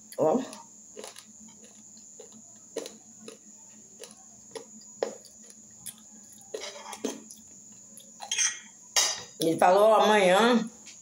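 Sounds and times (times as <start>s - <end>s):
person chewing food: 0.0s - 8.3s
faint hum: 0.0s - 11.0s.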